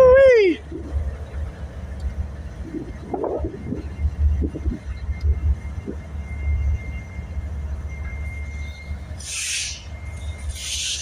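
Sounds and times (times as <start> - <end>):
freight train rumbling past: 0.0 - 11.0
burst of hiss: 9.2 - 9.9, 10.5 - 11.0.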